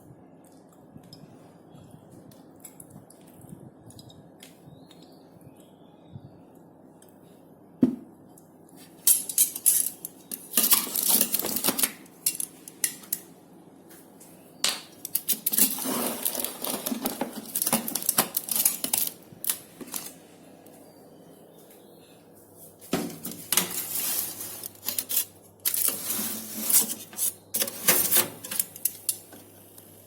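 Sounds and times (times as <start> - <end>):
utensils clinking on cookware: 9.0 - 13.3, 14.7 - 19.2, 23.0 - 29.5.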